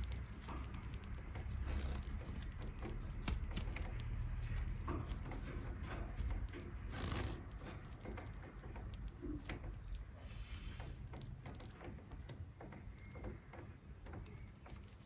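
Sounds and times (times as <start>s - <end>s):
birds clicking and tapping in cage: 0.0s - 15.0s.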